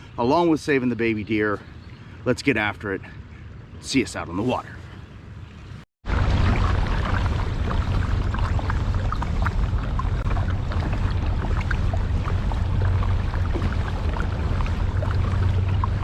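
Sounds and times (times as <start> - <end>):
water splashes and drips: 6.0 - 16.0
river water rushing: 6.1 - 16.0.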